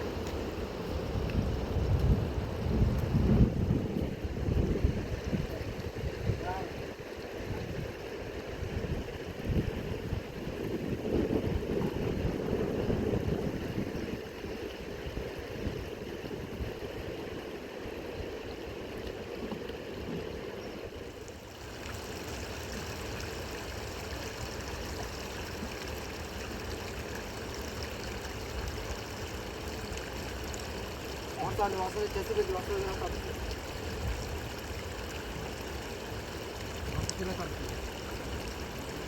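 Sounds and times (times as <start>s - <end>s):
river water rushing: 14.3s - 39.0s.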